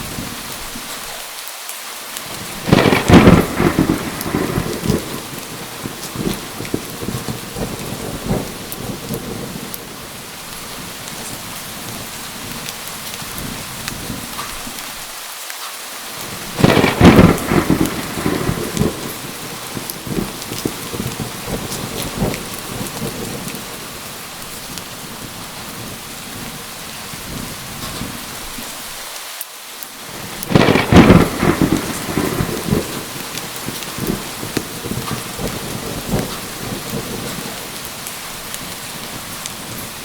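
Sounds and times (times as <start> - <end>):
heavy rain: 0.0 - 40.0
thunderclaps: 2.3 - 14.8, 16.2 - 28.7, 30.0 - 40.0.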